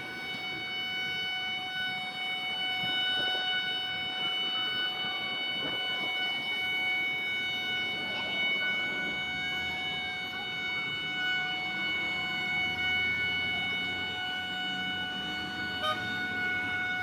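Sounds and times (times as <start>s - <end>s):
steady horn-like tone: 0.0s - 17.0s.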